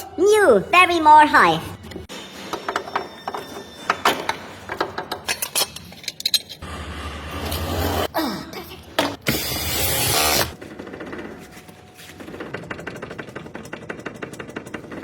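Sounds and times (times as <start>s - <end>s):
metallic clicks of parts handled: 4.9s - 6.6s.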